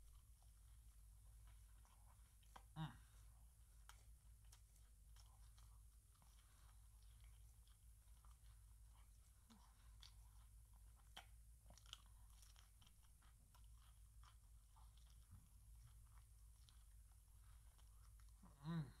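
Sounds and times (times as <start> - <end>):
chewing fried chicken: 0.0 - 19.0
low steady hum: 0.0 - 19.0.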